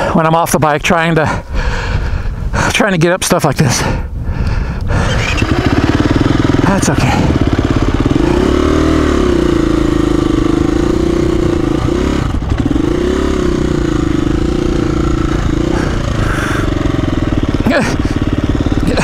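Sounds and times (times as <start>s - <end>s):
dirt bike engine revving: 4.9s - 19.0s.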